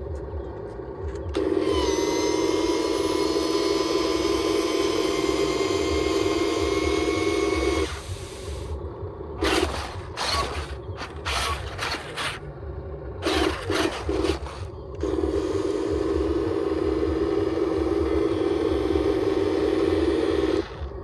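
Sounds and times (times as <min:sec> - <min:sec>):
small electric motor humming: 0:01.3 - 0:08.8, 0:09.4 - 0:12.5, 0:13.2 - 0:21.0
plastic gears clicking and rattling: 0:09.4 - 0:12.4, 0:13.2 - 0:14.7.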